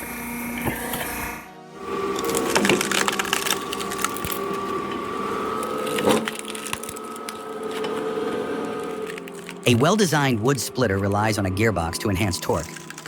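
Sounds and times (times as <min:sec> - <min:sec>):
machine whine: 0:00.0 - 0:13.0
wood cracking: 0:02.0 - 0:10.7, 0:12.3 - 0:13.0.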